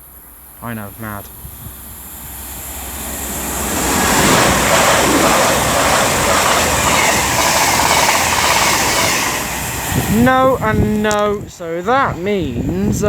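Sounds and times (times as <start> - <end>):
train passing at high speed: 0.0 - 12.7.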